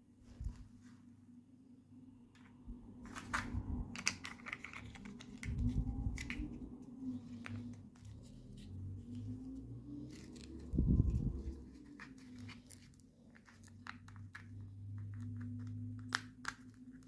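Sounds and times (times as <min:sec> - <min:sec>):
plastic pieces clicking and tapping: 0:03.1 - 0:06.5, 0:12.0 - 0:17.0.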